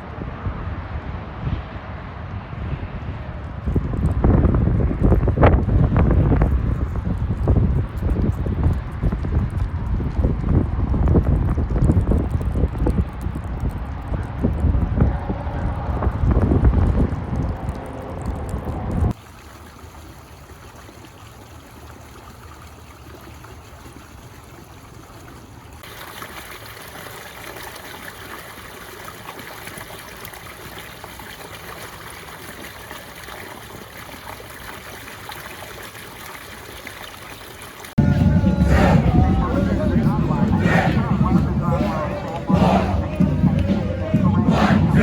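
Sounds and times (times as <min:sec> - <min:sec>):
water trickling: 0:17.2 - 0:38.0
loud low rumble: 0:38.0 - 0:45.0.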